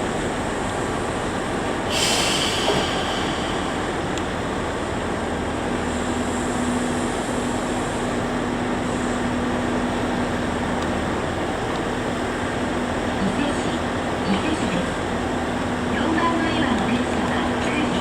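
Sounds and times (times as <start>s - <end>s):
train running noise: 0.0s - 18.0s.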